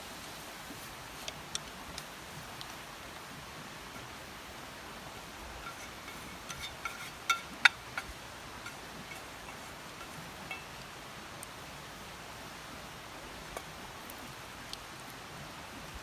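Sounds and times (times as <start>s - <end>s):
steady rain-like hiss: 0.0s - 16.0s
light clicks and clinks: 5.6s - 11.5s.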